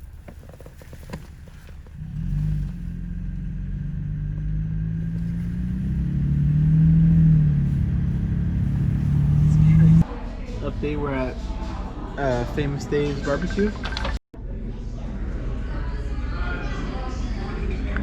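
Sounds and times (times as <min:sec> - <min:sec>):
vehicle engine running: 0:00.0 - 0:10.1.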